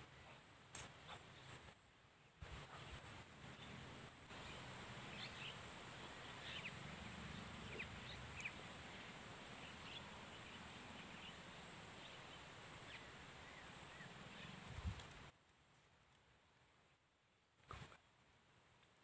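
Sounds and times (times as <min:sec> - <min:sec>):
faint outdoor ambience: 0:00.0 - 0:19.0.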